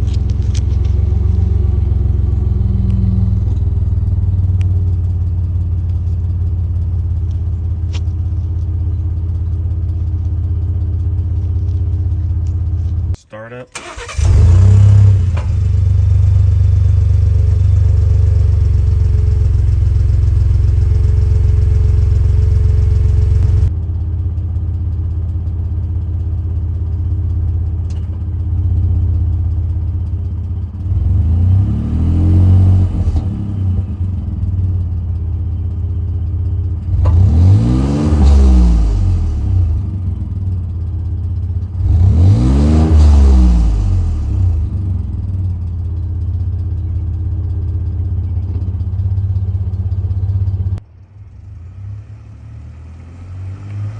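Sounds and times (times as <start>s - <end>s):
truck engine starting and idling: 0.0s - 53.9s
engine revving: 13.8s - 23.7s, 30.9s - 33.9s, 36.9s - 40.0s, 41.8s - 44.8s, 51.5s - 53.9s.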